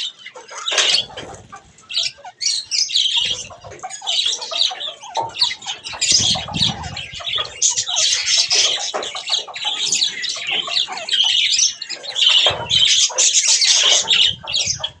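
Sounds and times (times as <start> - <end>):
budgerigars chattering and squawking: 0.0 - 15.0
wings fluttering: 0.6 - 11.0.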